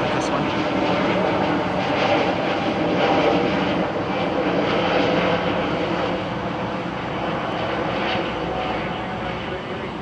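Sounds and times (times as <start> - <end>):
jet engines running: 0.0 - 5.5.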